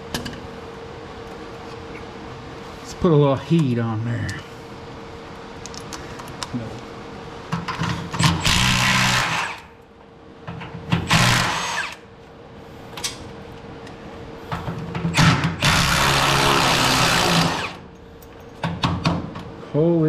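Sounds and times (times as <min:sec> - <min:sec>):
impact wrench running: 0:08.2 - 0:09.7, 0:11.0 - 0:12.0, 0:15.2 - 0:17.9.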